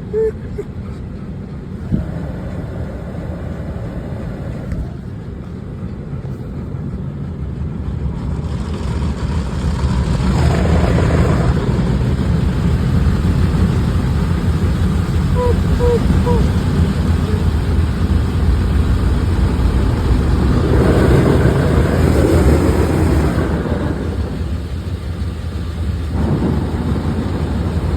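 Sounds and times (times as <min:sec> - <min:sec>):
car wash low rumble: 0:00.0 - 0:27.9
water spray hissing: 0:01.8 - 0:05.2.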